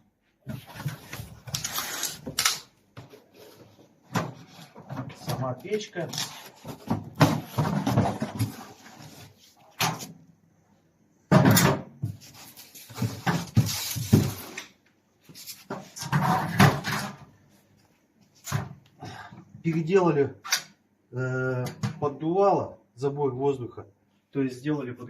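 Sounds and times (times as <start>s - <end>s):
rustling scraping and knocks: 0.4s - 10.2s, 12.0s - 17.3s.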